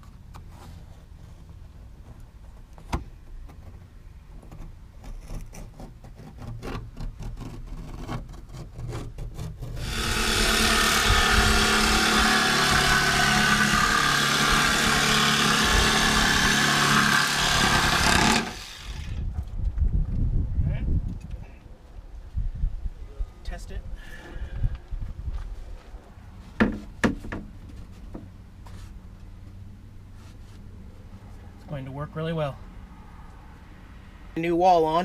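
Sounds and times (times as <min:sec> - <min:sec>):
jigsaw cutting wood: 0:09.8 - 0:19.2.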